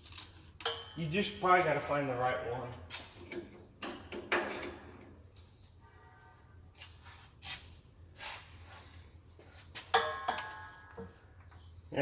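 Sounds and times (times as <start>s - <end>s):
metal tools clinking: 0.0s - 1.0s.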